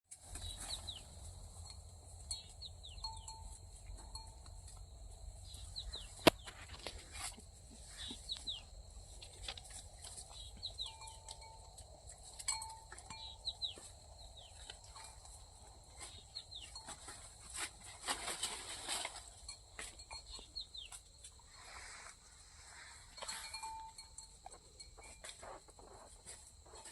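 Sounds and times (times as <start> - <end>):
clicks and rustles: 5.5 - 8.6, 16.0 - 21.3.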